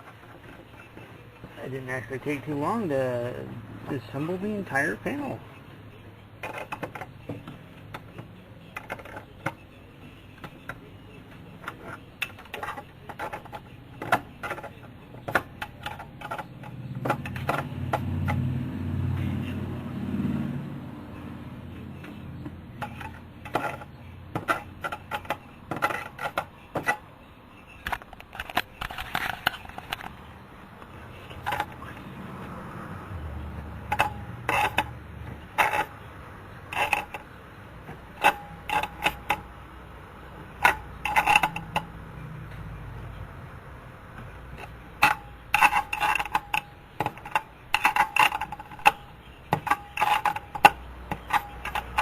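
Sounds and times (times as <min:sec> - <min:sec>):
metal hardware clicking and tapping: 0:40.4 - 0:42.6.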